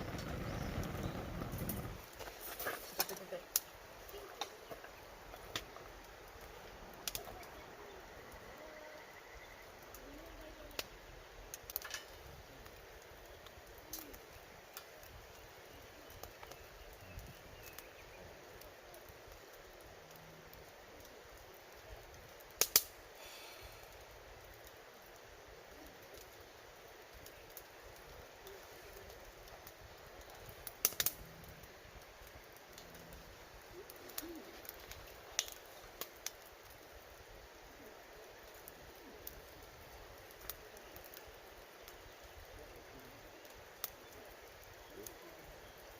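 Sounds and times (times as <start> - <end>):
firewood crackling and popping: 0.0 - 45.9
sharp pops of firewood: 22.6 - 23.0, 30.6 - 31.2.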